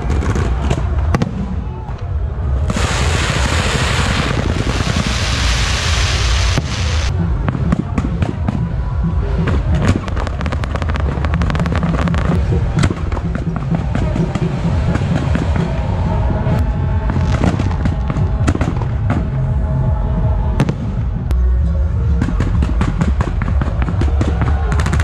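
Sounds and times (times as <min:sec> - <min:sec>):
fireworks hissing: 0:02.7 - 0:07.1.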